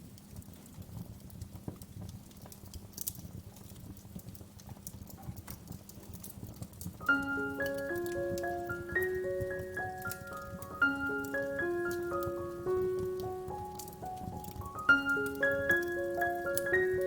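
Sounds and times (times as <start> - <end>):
wood fire crackling: 0.0 - 17.0
gentle bell-like music: 7.0 - 17.0.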